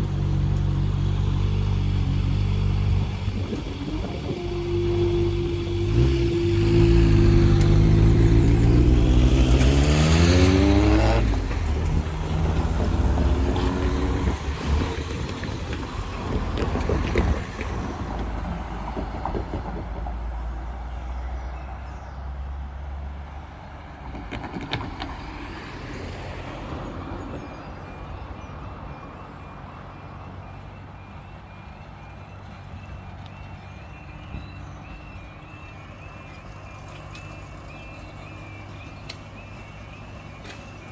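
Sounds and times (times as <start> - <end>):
vehicle accelerating through gears: 0.0 - 21.4
vehicles driving over crossing: 0.0 - 40.9
faint repeating alarm tone: 27.4 - 40.9.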